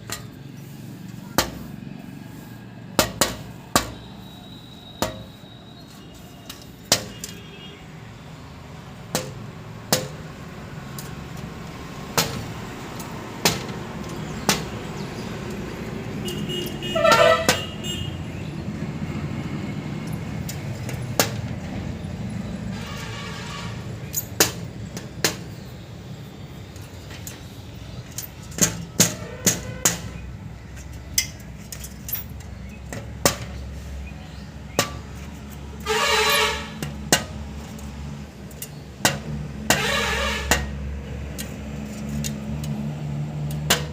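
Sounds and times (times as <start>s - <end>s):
short honks: 16.2s - 18.2s, 35.8s - 36.8s, 39.7s - 40.7s.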